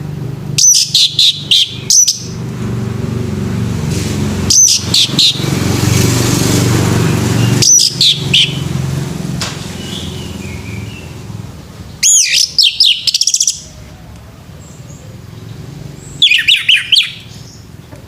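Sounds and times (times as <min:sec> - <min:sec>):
bird singing whistled notes: 0:00.6 - 0:02.4, 0:04.5 - 0:05.5, 0:07.1 - 0:08.7, 0:11.9 - 0:13.7, 0:16.0 - 0:17.7.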